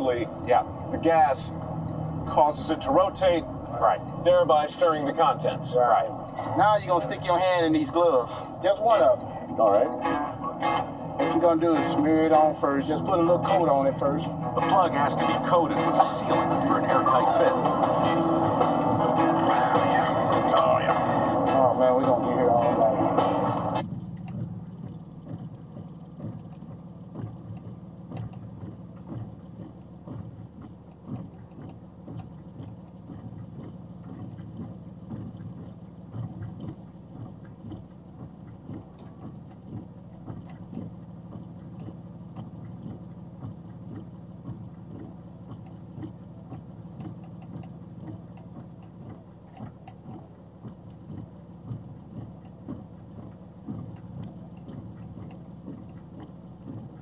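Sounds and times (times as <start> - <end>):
low engine hum: 0.0 - 57.0
light irregular clicks: 19.8 - 57.0.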